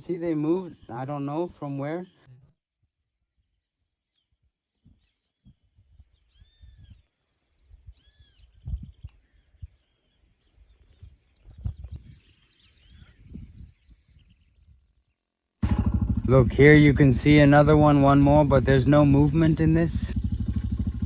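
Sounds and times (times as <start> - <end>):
bird calls: 0.0 - 2.5, 4.1 - 15.2.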